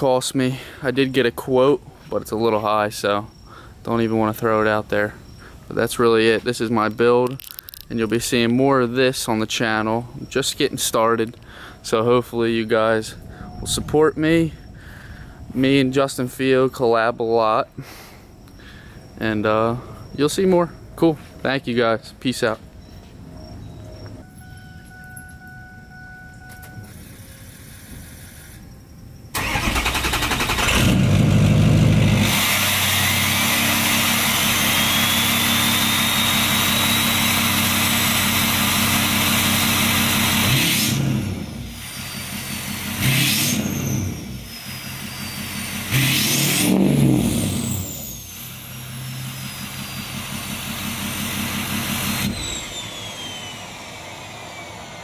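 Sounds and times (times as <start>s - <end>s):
diesel engine starting and revving: 29.3s - 55.0s
turbo whistle: 34.4s - 37.3s.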